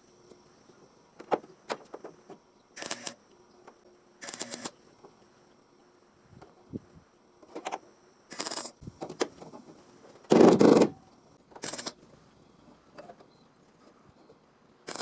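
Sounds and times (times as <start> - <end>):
welder crackling bursts: 2.8 - 3.2, 4.2 - 4.8, 8.3 - 8.8, 11.6 - 12.0.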